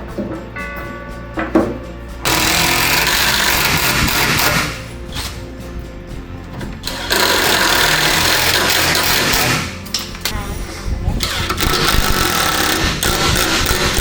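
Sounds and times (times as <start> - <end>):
power tool cutting wood: 2.2 - 5.4, 6.8 - 9.8, 11.2 - 14.0.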